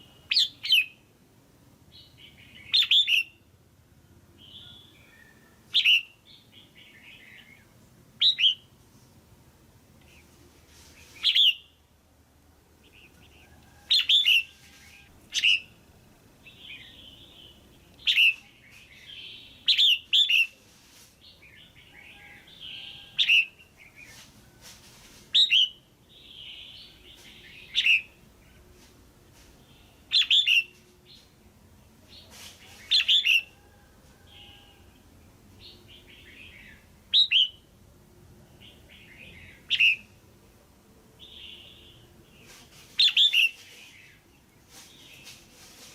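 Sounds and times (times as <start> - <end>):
bulbul sharp calls: 2.0 - 3.4, 4.4 - 8.7, 12.8 - 15.8, 16.5 - 20.6, 29.7 - 31.2, 35.6 - 37.6, 38.6 - 40.1.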